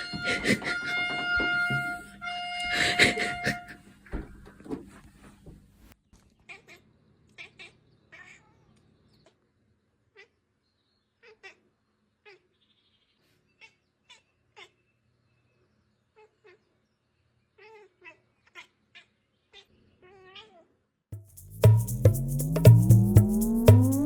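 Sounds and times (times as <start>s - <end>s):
music: 21.2s - 24.0s.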